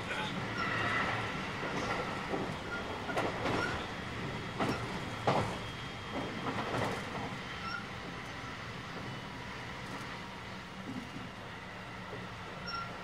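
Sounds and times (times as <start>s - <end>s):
train rolling rumble: 0.0s - 13.0s
wheels clacking over rail joints: 0.5s - 8.3s.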